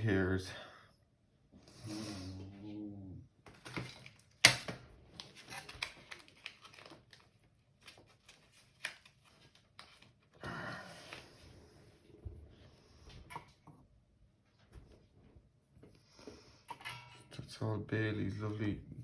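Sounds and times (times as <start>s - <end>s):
plastic parts clicking and rattling: 3.5s - 10.0s
plastic rustle: 5.1s - 10.3s.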